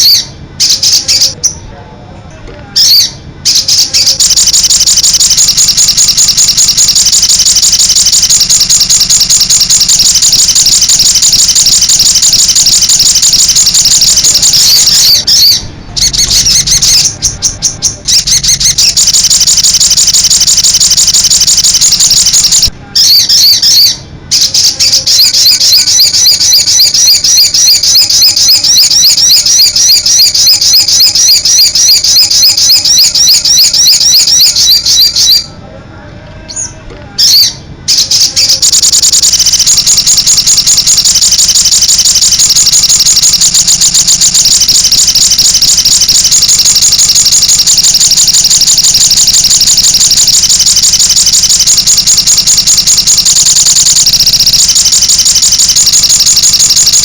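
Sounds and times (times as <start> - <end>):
bird song high trill: 0.0 - 1.7, 2.8 - 35.5.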